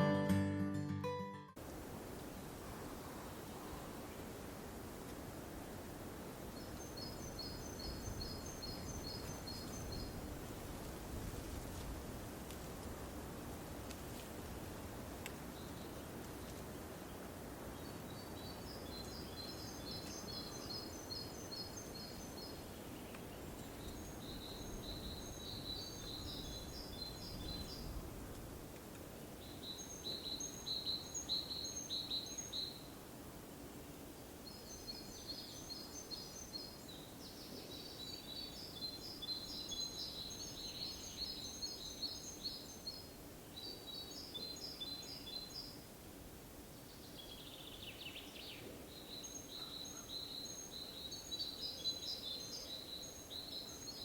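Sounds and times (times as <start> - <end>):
faint low background noise: 0.0 - 54.0
songbird singing: 6.4 - 10.4, 15.5 - 28.0, 29.3 - 33.0, 33.7 - 45.9, 46.7 - 54.0.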